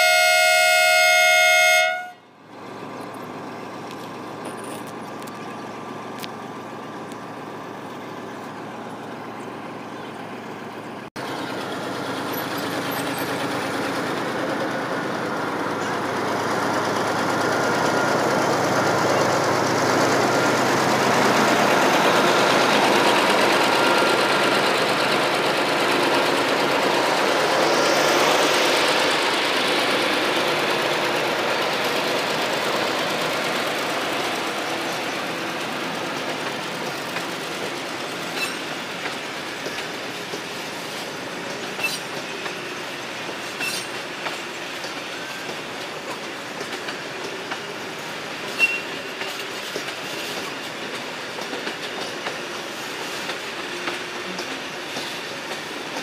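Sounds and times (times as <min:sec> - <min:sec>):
locomotive horn: 0:00.0 - 0:02.3
locomotive engine: 0:00.0 - 0:56.0
train wheels on rails: 0:01.8 - 0:56.0.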